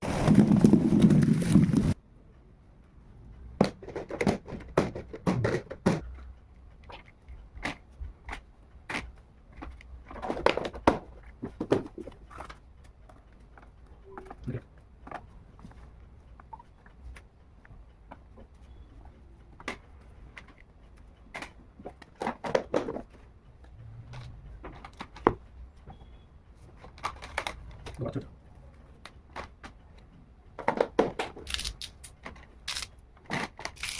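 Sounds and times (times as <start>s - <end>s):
vegetables and containers knocking: 3.6s - 6.2s, 10.2s - 12.2s.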